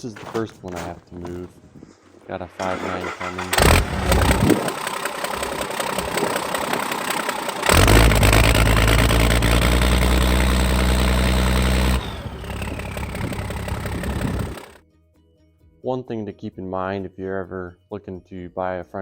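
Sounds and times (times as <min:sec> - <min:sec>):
wheel loader diesel engine revving: 0:02.6 - 0:14.8.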